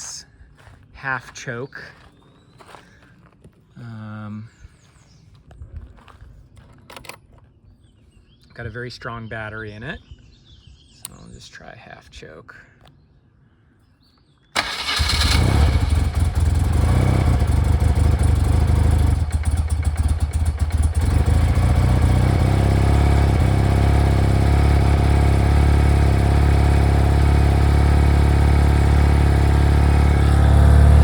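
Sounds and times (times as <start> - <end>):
motorcycle engine starting and idling: 14.6 - 31.0.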